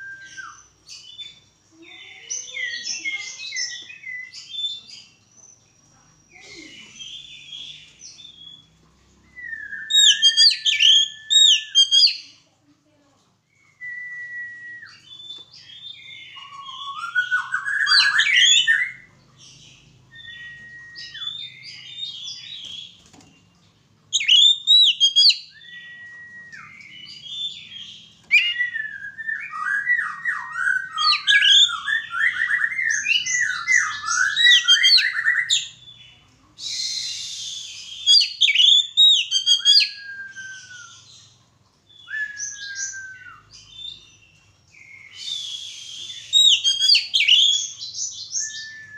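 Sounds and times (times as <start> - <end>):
bird singing whistled phrases: 0.0 - 1.4, 9.3 - 12.2, 13.6 - 19.1, 20.1 - 22.9, 24.2 - 35.8, 36.6 - 41.2, 41.9 - 44.1, 44.8 - 48.9.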